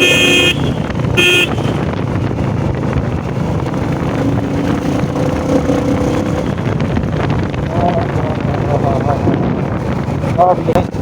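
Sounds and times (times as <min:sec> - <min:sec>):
vehicle horn beeps: 0:00.0 - 0:01.9
motorcycle running: 0:00.0 - 0:11.0.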